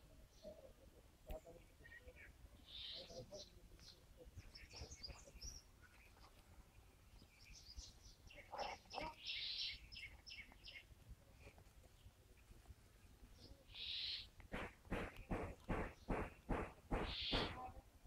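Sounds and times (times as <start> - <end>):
harsh bird call: 13.7 - 17.7
myna chirps and whistles: 17.0 - 17.6.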